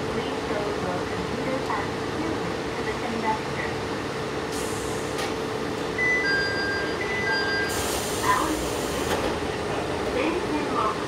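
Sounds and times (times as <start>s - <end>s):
air hiss of doors: 4.5s - 5.3s, 7.7s - 9.4s.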